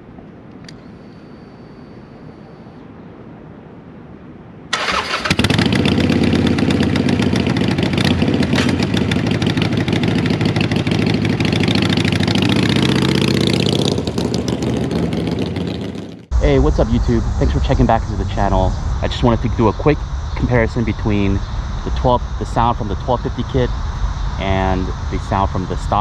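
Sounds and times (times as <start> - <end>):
motorcycle engine starting and running: 4.7 - 21.0.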